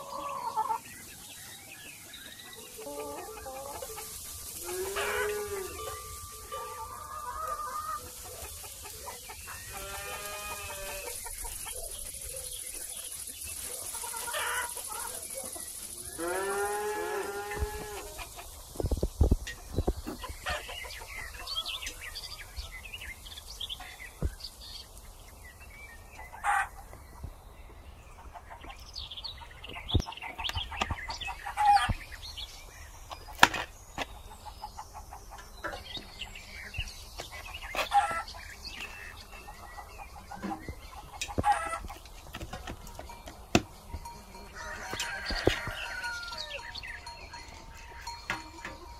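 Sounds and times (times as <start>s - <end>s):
hens clucking: 0.0s - 1.1s, 1.9s - 22.0s, 26.2s - 27.2s, 28.1s - 32.2s, 33.0s - 48.9s
small birds chirping: 0.0s - 48.9s
rooster crowing: 44.4s - 46.8s.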